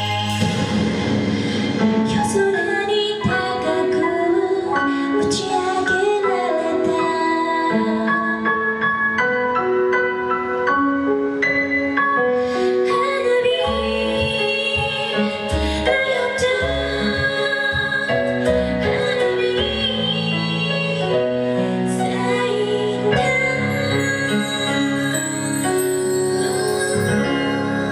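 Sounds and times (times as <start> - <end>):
bass line: 0.0 - 2.5
instrumental accompaniment: 0.0 - 27.9
woman singing: 1.4 - 8.9, 12.7 - 27.9.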